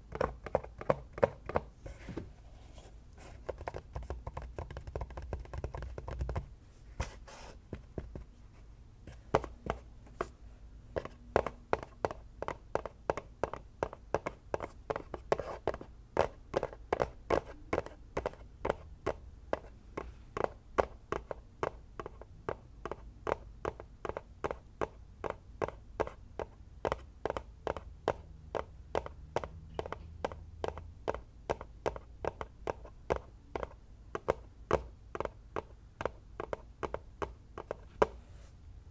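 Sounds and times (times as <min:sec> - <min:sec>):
fingers tapping on object: 0:03.4 - 0:06.5, 0:11.0 - 0:38.2.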